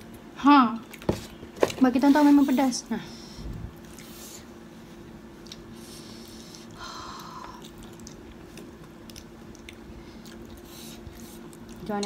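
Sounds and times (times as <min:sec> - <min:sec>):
steady low hum: 0:00.0 - 0:12.0
chewing and wet mouth clicks: 0:05.4 - 0:12.0.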